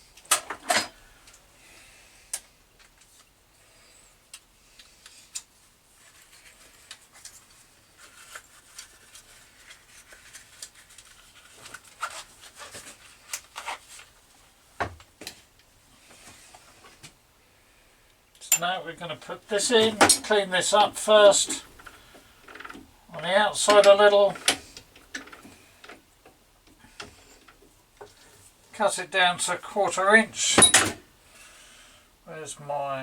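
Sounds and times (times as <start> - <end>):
metal parts and tools clicking: 30.4 - 31.0.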